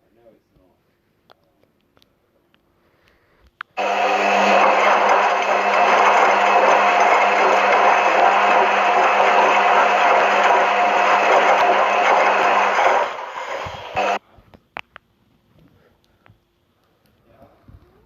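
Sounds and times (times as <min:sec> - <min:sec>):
electric motor whirring: 0:03.8 - 0:14.2.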